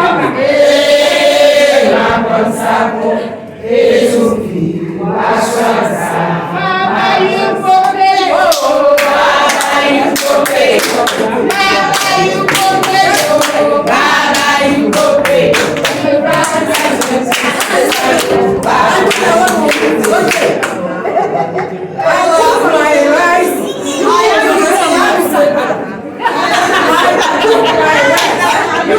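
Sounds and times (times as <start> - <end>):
women singing together: 0.0 - 28.9
rhythmic hand-clapping: 7.7 - 20.9.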